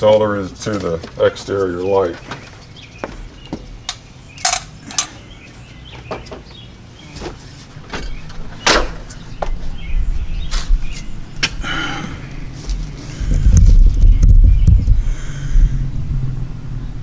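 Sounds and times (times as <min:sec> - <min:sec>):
low rumble: 0:09.2 - 0:17.0.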